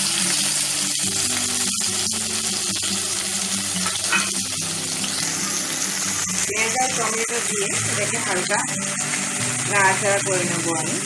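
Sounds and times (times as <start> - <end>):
onion and tomato sizzling in oil: 0.0 - 11.0.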